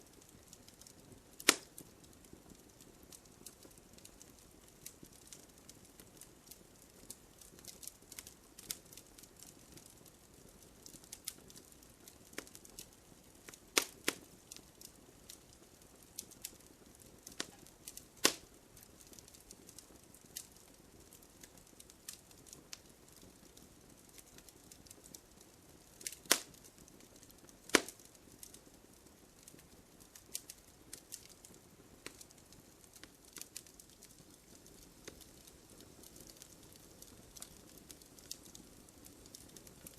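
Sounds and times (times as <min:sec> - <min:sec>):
wood fire crackling: 0:00.0 - 0:39.9
loud sharp fire pops: 0:01.4 - 0:01.8, 0:13.7 - 0:14.2, 0:17.3 - 0:18.5, 0:26.0 - 0:26.6, 0:27.6 - 0:28.1.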